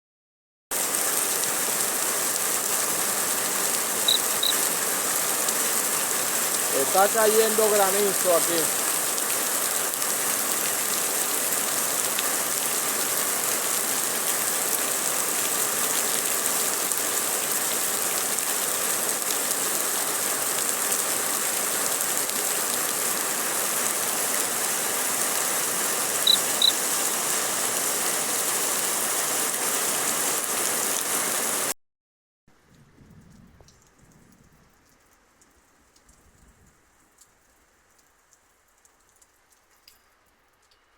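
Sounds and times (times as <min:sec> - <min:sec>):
heavy rain and hail: 0:00.7 - 0:31.7.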